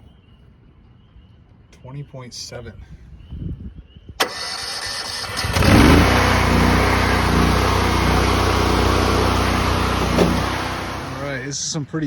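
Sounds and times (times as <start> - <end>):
pressure washer engine running: 4.5 - 11.5.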